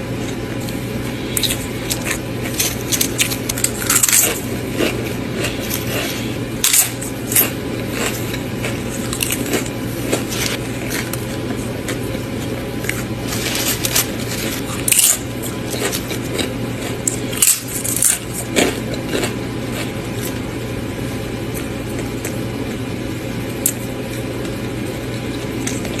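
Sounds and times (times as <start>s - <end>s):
steady low hum: 0.0s - 26.0s
close chewing and biting: 0.3s - 20.5s.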